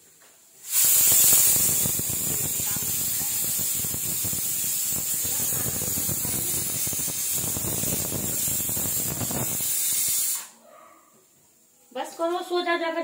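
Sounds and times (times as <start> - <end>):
food sizzling in frying: 0.6 - 10.5.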